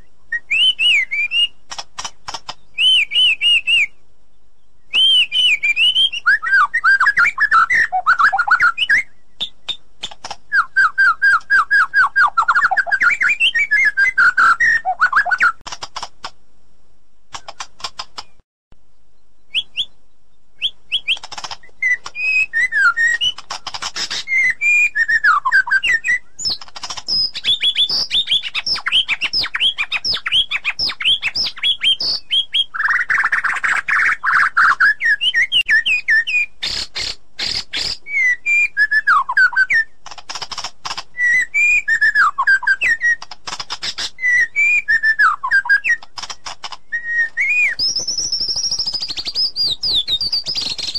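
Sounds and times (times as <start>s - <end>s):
bird singing whistles and runs: 0.3s - 1.6s, 2.3s - 4.0s, 4.9s - 15.6s, 19.4s - 20.0s, 20.6s - 50.9s
bird clicking notes: 1.3s - 3.2s, 9.4s - 10.6s, 14.2s - 16.4s, 17.3s - 18.4s, 20.6s - 24.4s, 25.7s - 32.3s, 40.0s - 41.4s, 42.8s - 44.5s, 45.7s - 50.9s
bird harsh chattering: 20.7s - 24.7s, 25.3s - 38.3s, 39.3s - 50.9s.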